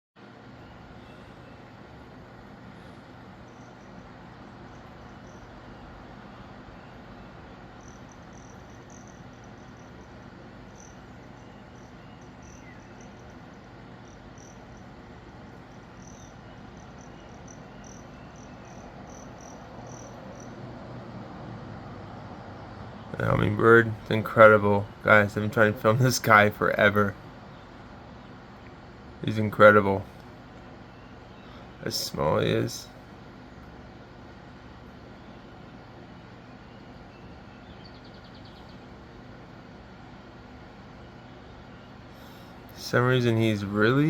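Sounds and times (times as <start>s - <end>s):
low hum: 0.3s - 44.0s.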